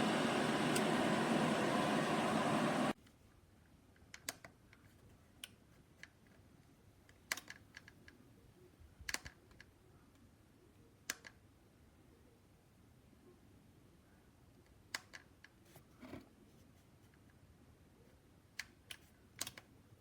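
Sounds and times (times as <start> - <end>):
steady rushing noise: 0.0 - 3.0.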